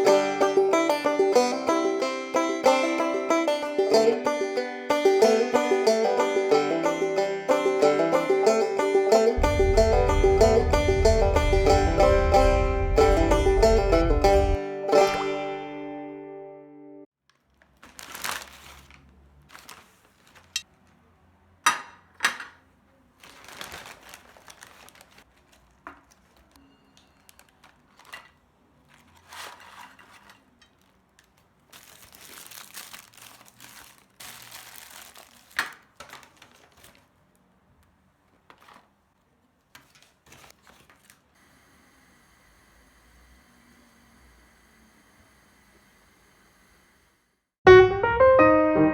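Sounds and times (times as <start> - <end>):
wrapping crinkling: 17.3 - 21.0, 23.0 - 37.5, 38.2 - 41.3.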